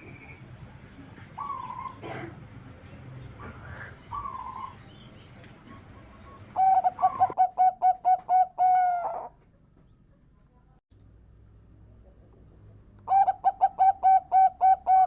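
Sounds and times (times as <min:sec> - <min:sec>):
dove cooing song: 0:01.0 - 0:02.4, 0:03.3 - 0:09.4, 0:13.1 - 0:15.0.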